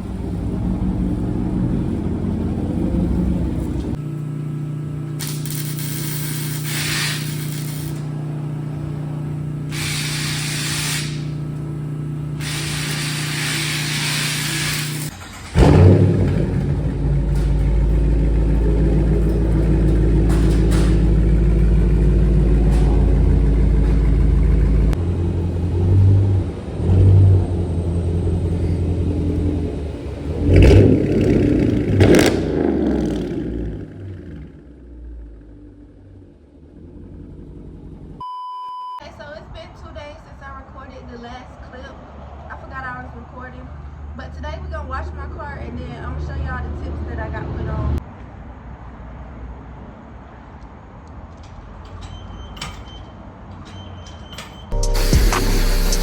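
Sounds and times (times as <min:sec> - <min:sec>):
car engine starting and revving: 0:00.0 - 0:38.2, 0:54.7 - 0:56.0
hissing bursts: 0:05.2 - 0:08.1, 0:09.7 - 0:11.5, 0:12.4 - 0:15.9, 0:54.8 - 0:56.0
steady low hum: 0:54.8 - 0:56.0.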